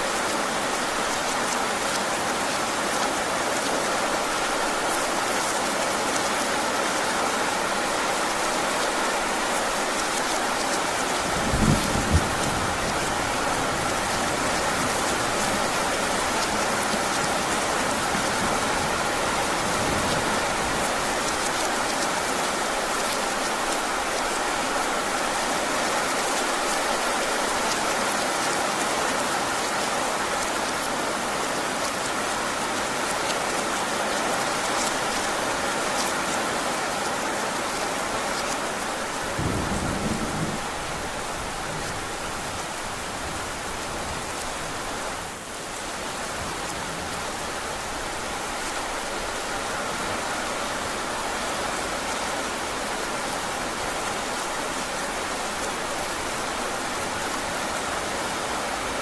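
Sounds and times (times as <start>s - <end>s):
heavy rain: 0.0s - 59.0s
low rumble of thunder: 11.3s - 14.1s, 39.3s - 42.1s.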